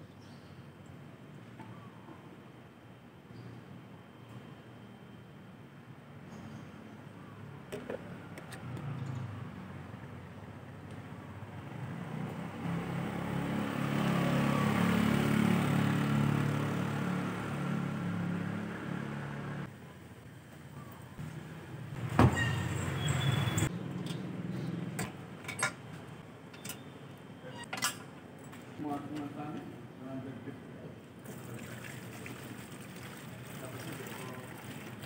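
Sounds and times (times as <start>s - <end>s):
vehicle engine passing by: 11.4s - 19.7s.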